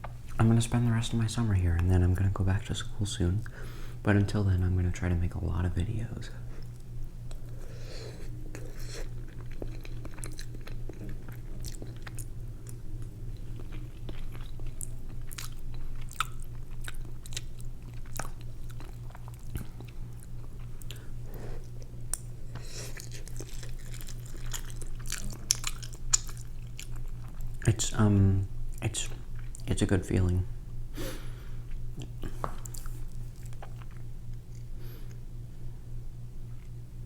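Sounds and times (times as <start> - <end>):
low electrical hum: 0.0 - 37.0
chewing and mouth noises: 6.5 - 28.0, 28.6 - 30.3, 31.6 - 35.2.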